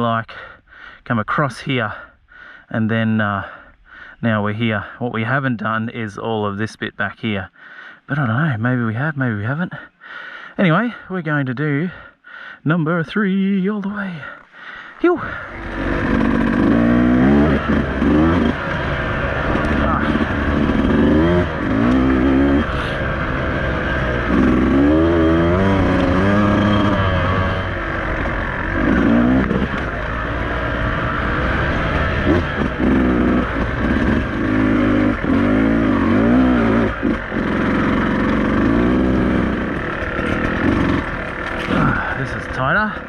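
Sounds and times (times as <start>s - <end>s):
dirt bike engine revving: 15.1s - 43.0s.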